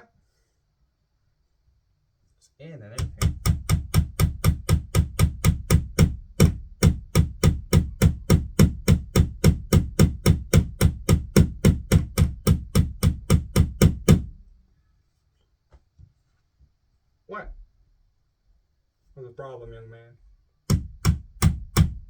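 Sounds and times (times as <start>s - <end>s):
hammer driving a nail: 3.0s - 14.4s, 20.7s - 22.0s.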